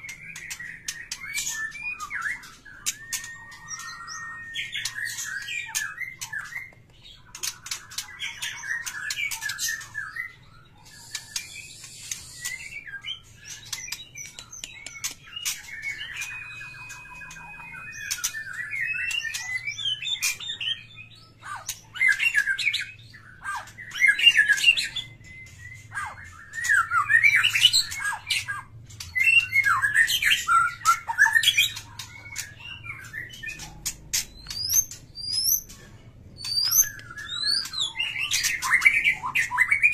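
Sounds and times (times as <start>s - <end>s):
birds chirping and squawking: 0.0s - 39.9s.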